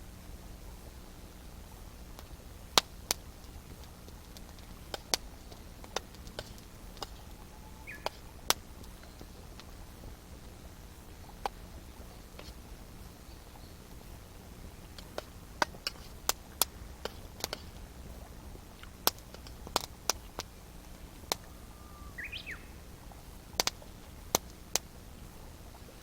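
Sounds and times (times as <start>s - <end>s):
campfire crackling and popping: 0.0s - 26.0s
short bird call: 7.2s - 8.3s, 21.5s - 22.8s.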